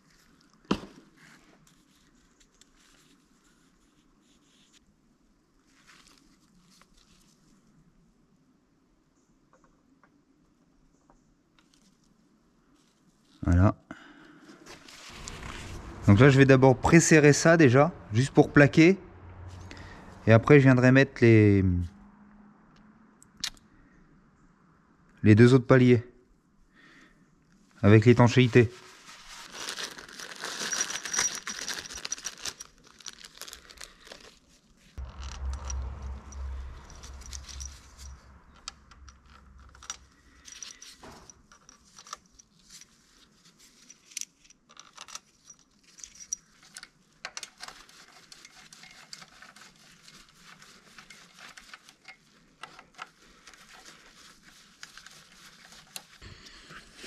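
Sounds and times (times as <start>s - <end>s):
metal tools clinking: 30.1s - 34.3s, 35.0s - 43.0s, 43.8s - 47.8s
handling rumble on microphone: 35.0s - 40.4s.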